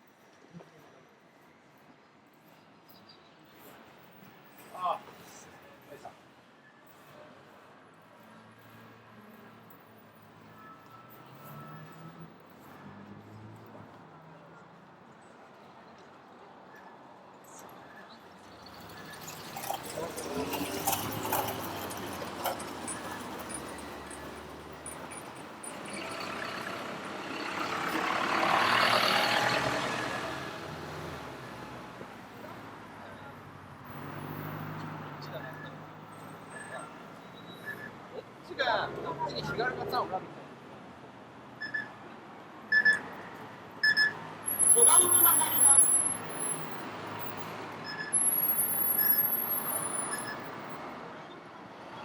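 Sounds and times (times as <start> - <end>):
traffic: 0.0 - 52.0
truck engine: 18.4 - 36.8, 43.9 - 50.8
vehicle passing by: 18.7 - 36.1
truck warning speaker beeping: 41.6 - 42.0, 42.7 - 43.2, 43.8 - 50.8.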